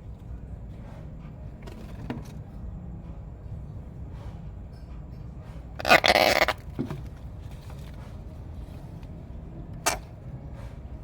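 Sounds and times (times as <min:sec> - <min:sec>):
gecko harsh call: 0:05.8 - 0:06.6.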